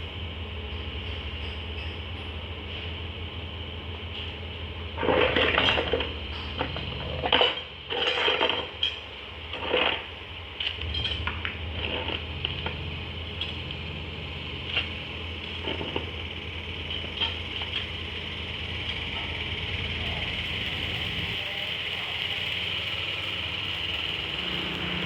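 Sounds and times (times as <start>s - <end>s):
low machine hum: 0.0s - 25.0s
metal parts clanking and rattling: 5.0s - 13.6s.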